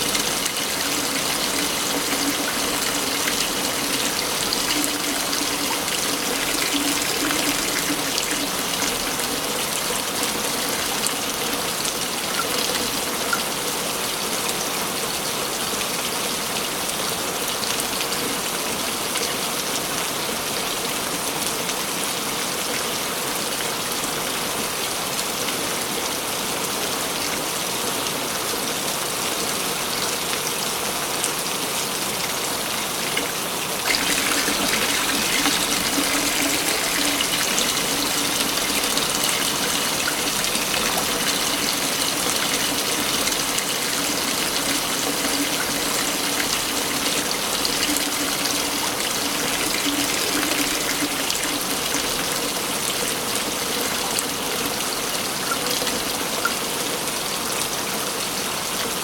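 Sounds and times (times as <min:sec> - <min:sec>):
waterfall rushing: 0:00.0 - 0:10.6, 0:32.9 - 0:55.3.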